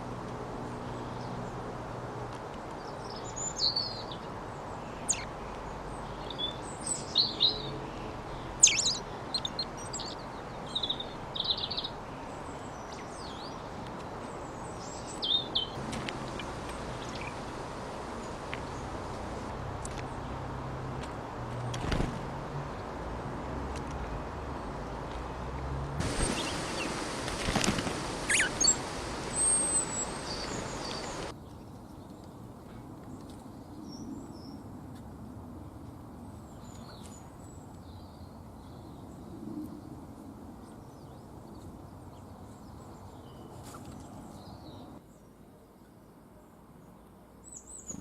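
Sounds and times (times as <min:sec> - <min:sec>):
small birds chirping: 0:02.7 - 0:20.4, 0:23.9 - 0:34.6, 0:46.8 - 0:48.0.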